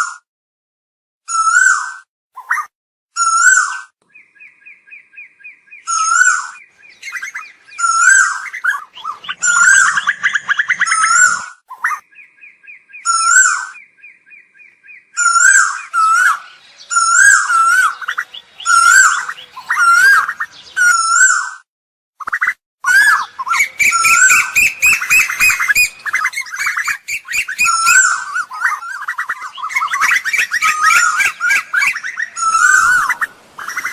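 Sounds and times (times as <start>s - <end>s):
koel calling: 5.8s - 12.0s, 13.0s - 21.5s, 22.8s - 33.9s.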